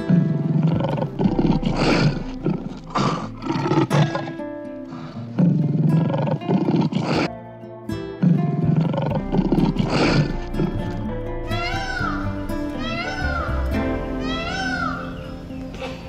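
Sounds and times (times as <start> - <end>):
lions growling and snarling: 0.0 - 7.4, 8.2 - 12.3
background music: 0.0 - 16.0.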